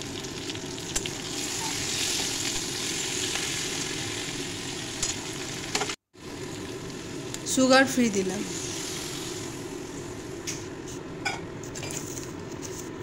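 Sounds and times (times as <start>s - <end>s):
vegetables sizzling in hot oil: 0.0s - 10.5s.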